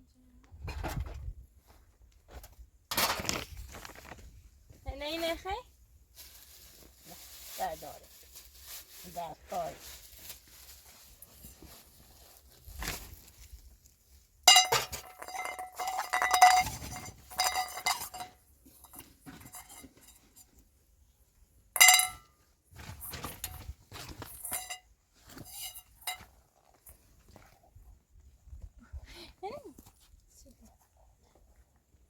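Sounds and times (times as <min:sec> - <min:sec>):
metallic bell-like clinking: 0:21.8 - 0:22.3.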